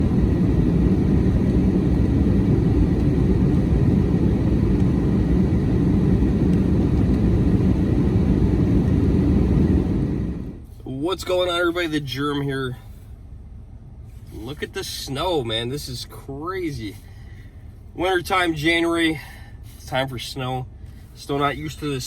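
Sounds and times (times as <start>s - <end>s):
loud low rumbling noise: 0.0s - 10.7s.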